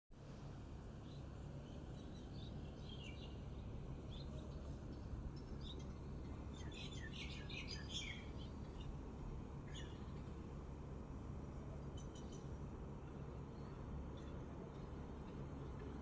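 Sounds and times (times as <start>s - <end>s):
low background hum: 0.2s - 16.0s
small birds twittering: 6.6s - 8.5s.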